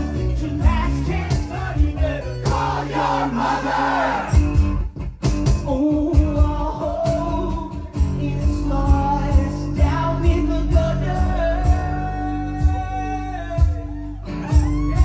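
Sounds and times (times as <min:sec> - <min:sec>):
steady drum beat: 0:00.0 - 0:13.9
rock band playing live: 0:00.0 - 0:15.0
person singing: 0:05.7 - 0:15.0.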